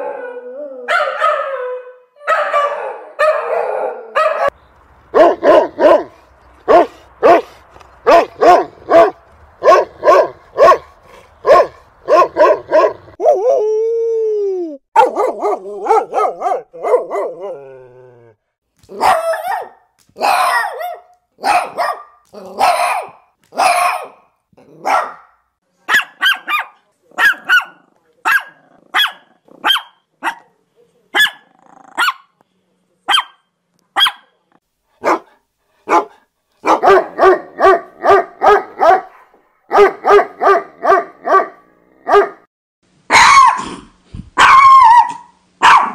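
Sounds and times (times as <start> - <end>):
dogs barking: 0.9 - 13.2, 15.0 - 17.5, 18.9 - 30.6, 31.2 - 32.3, 34.0 - 34.3, 35.0 - 42.5, 43.1 - 43.8, 44.4 - 45.9.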